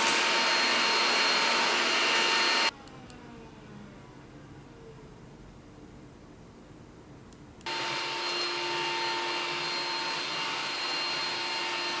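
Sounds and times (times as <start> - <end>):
cordless vacuum cleaner whining: 0.0 - 3.6, 7.7 - 12.0.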